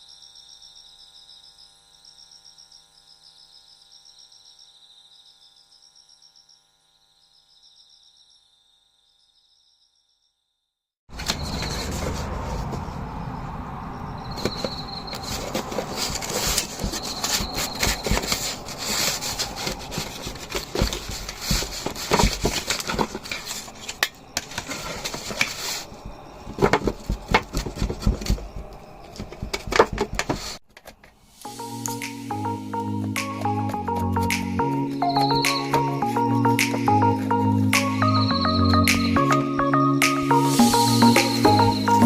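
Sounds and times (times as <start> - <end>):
utensils scraping and knocking: 11.1 - 12.9, 14.3 - 31.2.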